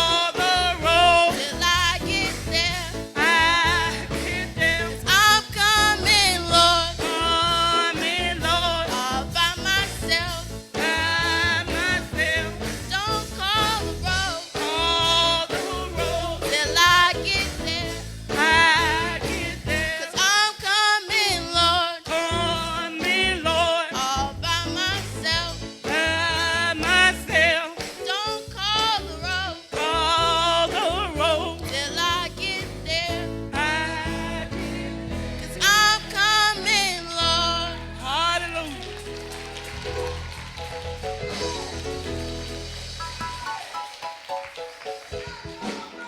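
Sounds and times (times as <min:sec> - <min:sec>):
instrumental backing with bass: 0:00.0 - 0:20.4, 0:21.1 - 0:46.0
person singing with vibrato: 0:00.0 - 0:38.8.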